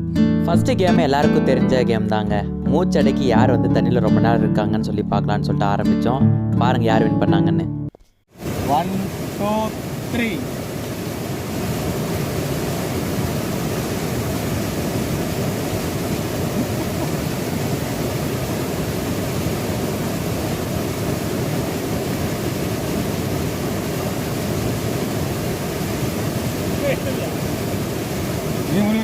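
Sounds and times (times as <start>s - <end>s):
water rushing: 8.4s - 29.0s.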